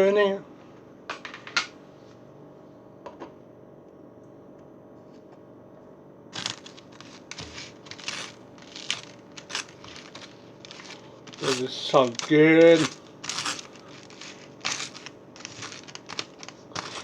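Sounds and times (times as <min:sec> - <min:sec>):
knife spreading butter on toast: 0:06.4 - 0:17.0.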